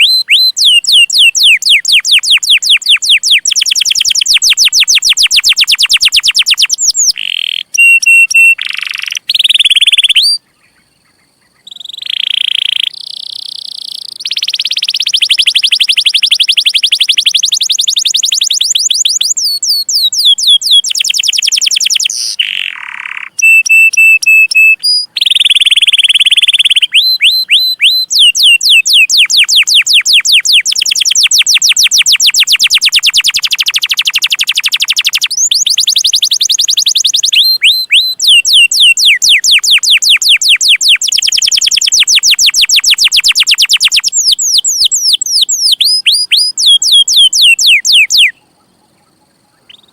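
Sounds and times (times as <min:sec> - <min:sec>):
canary singing: 0:00.0 - 0:49.9.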